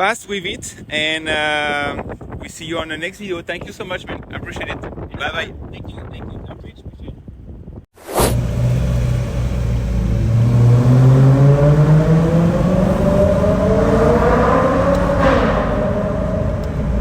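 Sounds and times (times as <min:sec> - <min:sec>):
car engine accelerating: 0:08.2 - 0:17.0.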